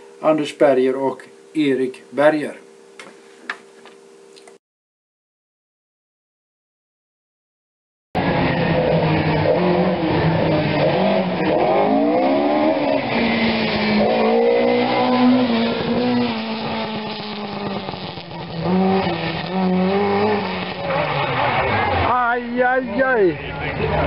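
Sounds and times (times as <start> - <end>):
rally car engine revving: 8.2 - 24.0.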